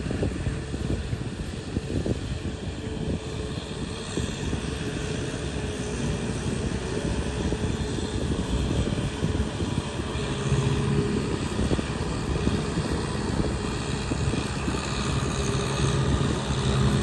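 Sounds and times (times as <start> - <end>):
tractor engine running under load: 0.0 - 17.0.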